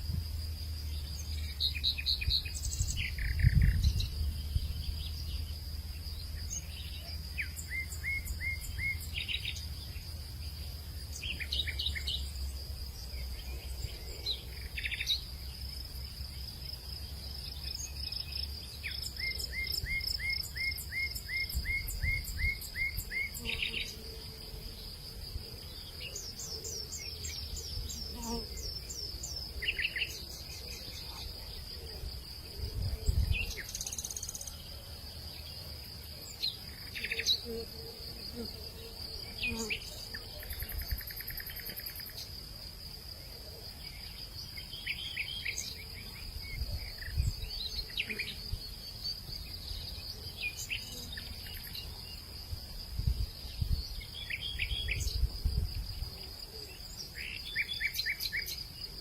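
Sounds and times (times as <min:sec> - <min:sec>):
pulsing insect trill: 0:00.0 - 0:59.0
wind gusts on microphone: 0:02.3 - 0:04.9, 0:52.6 - 0:56.2.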